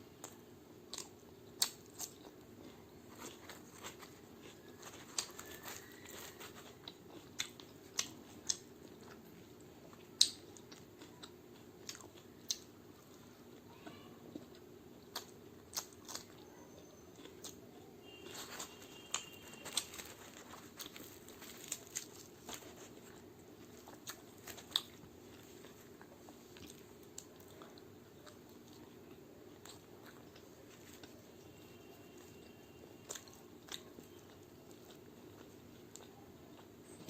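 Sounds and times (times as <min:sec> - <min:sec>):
crunchy chewing and biting: 0:00.2 - 0:13.6, 0:14.3 - 0:37.0.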